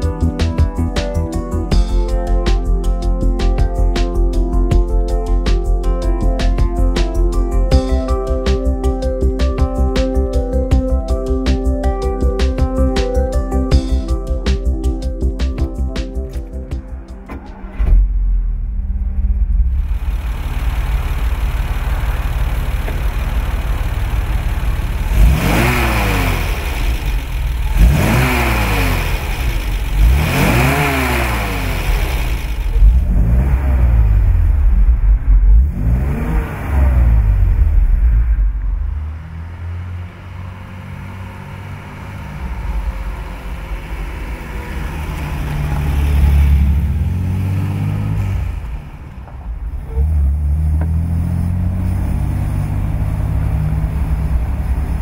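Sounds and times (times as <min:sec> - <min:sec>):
car engine idling: 0:00.0 - 0:55.0
car engine revving: 0:12.8 - 0:55.0
car pulling away and driving past: 0:16.1 - 0:55.0.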